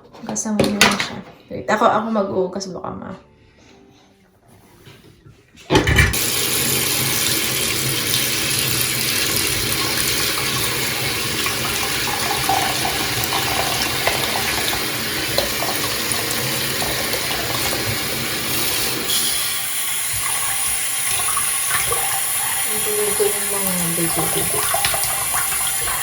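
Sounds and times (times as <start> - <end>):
rinsing under tap: 5.9 - 26.0
water tap running into sink: 6.0 - 26.0.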